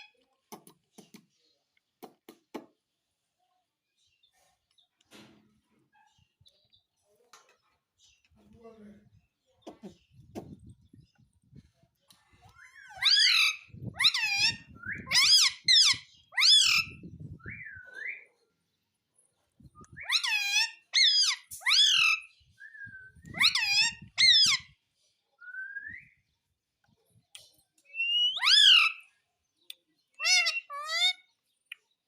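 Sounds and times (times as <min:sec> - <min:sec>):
parrot squawking and whistling: 0:12.6 - 0:18.2, 0:20.0 - 0:24.6, 0:27.9 - 0:29.0, 0:30.2 - 0:31.2.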